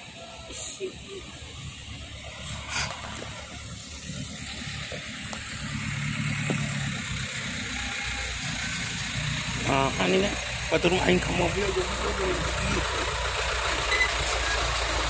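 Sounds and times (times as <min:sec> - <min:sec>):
vehicle engine humming: 0:00.0 - 0:15.0
steady hiss: 0:00.4 - 0:10.7.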